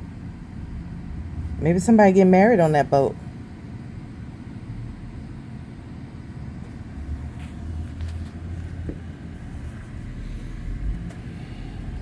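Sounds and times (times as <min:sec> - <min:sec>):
low engine rumble: 0:06.5 - 0:12.0.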